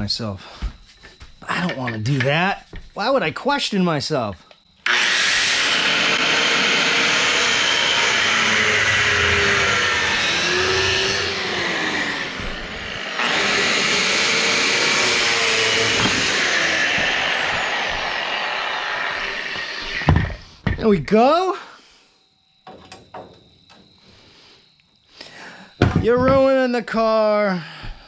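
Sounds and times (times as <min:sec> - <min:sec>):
grinder cutting steel: 0:04.8 - 0:20.4.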